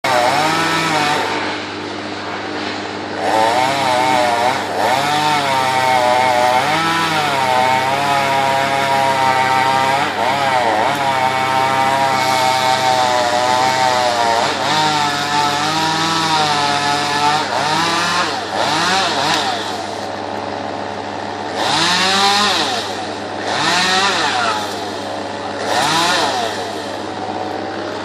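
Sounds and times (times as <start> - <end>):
chainsaw cutting tree: 0.0 - 28.0.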